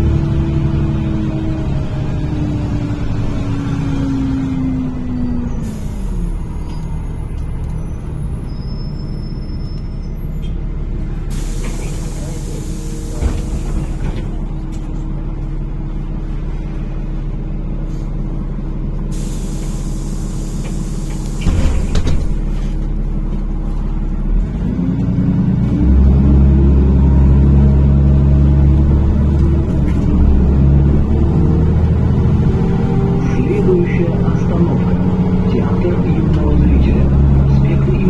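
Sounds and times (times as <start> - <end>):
bus engine: 0.0 - 38.0
compressed air hiss: 19.1 - 22.0.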